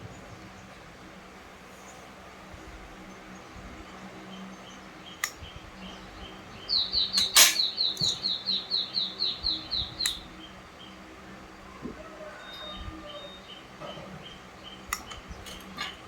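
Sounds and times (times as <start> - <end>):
bird chirping falling notes: 5.0 - 10.5
sharp clicks: 5.2 - 5.5.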